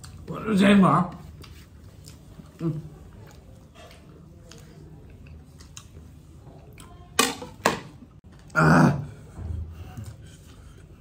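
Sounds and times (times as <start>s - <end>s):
person chewing: 1.3s - 6.0s.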